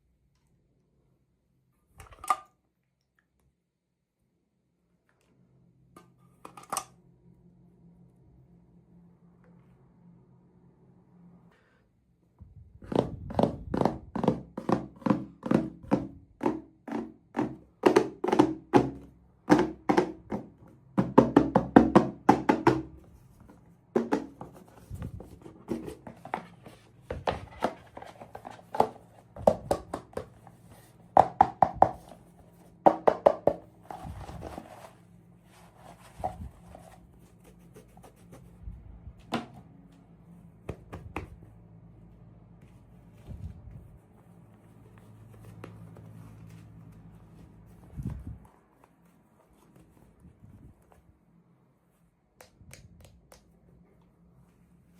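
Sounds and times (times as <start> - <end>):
plastic toys tapping and knocking: 12.8 - 23.0, 24.0 - 24.6, 25.6 - 30.4, 31.2 - 32.1, 32.9 - 33.7.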